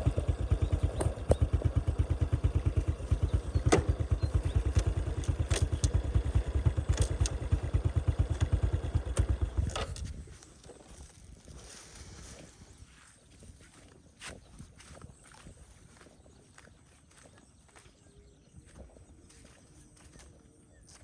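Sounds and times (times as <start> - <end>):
motorcycle engine putter: 0.0 - 10.8
sharp clicks and knocks: 3.6 - 6.2, 6.8 - 7.5.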